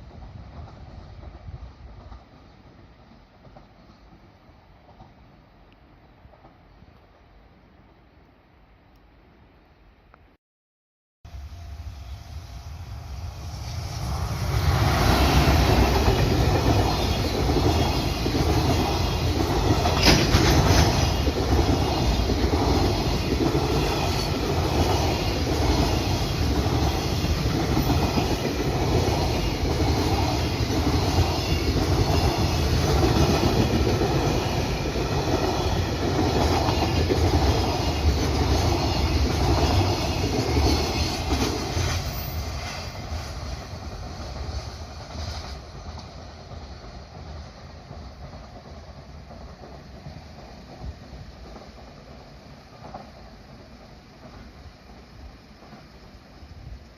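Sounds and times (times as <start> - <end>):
freight train rumbling past: 0.0 - 6.9, 11.3 - 56.9
wheels clacking over rail joints: 15.6 - 42.1.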